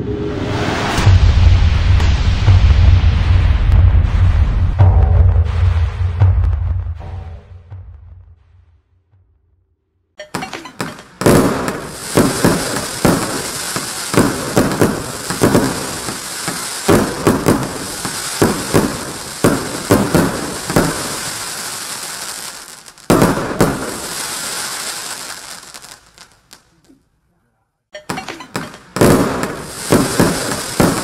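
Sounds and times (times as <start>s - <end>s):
fireworks shots: 0.9s - 9.3s, 10.3s - 26.8s, 28.1s - 31.0s
crackling of bursting stars: 10.4s - 26.8s.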